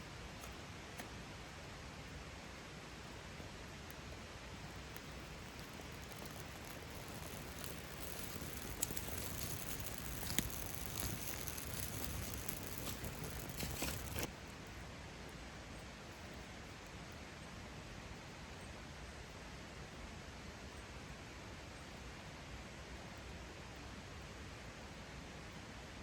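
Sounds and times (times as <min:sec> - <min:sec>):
steady hiss: 0:00.0 - 0:14.4
campfire crackling and popping: 0:04.7 - 0:14.3.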